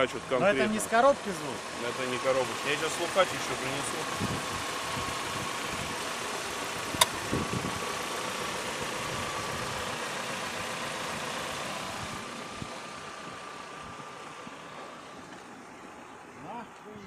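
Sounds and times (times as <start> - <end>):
car engine idling: 0.0 - 17.0
engine ticking noise: 0.0 - 17.0
sharp click: 7.0 - 7.2.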